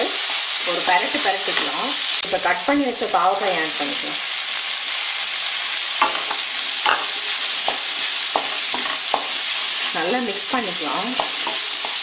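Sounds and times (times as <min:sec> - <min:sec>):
spatula stirring and scraping pan: 0:00.0 - 0:02.2, 0:04.3 - 0:12.0
vegetables sizzling in hot oil: 0:00.0 - 0:12.0
spatula tapping pan: 0:06.0 - 0:09.4, 0:11.1 - 0:12.0.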